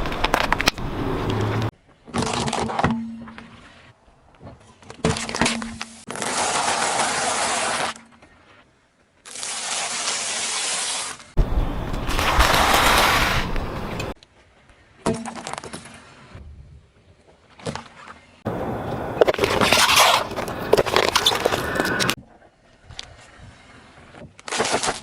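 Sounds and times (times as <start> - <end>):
tyres crushing objects: 19.1 - 22.2.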